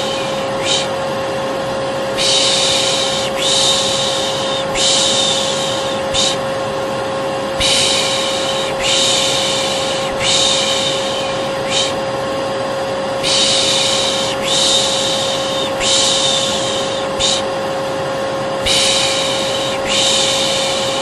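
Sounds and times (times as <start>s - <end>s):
person shushing: 0.0s - 1.0s, 2.1s - 6.5s, 7.6s - 12.1s, 13.2s - 17.6s, 18.6s - 21.0s
vacuum cleaner running: 0.0s - 21.0s.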